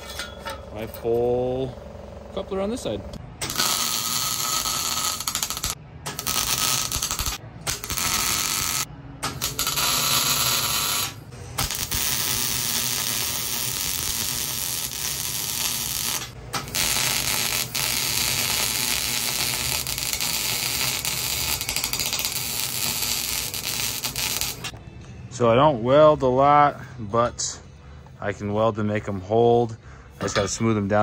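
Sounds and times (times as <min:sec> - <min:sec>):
welding arc crackling: 0:03.4 - 0:24.7.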